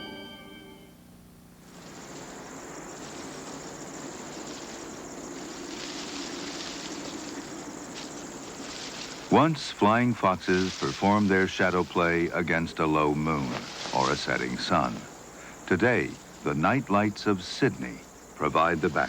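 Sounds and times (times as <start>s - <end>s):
organ-like theme music: 0.0s - 1.0s, 9.3s - 19.0s
steady background hiss: 0.0s - 19.0s.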